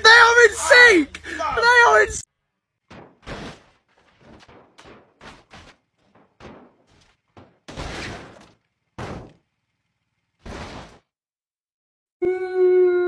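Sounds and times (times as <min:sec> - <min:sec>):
knocks and thumps: 0:02.9 - 0:09.4.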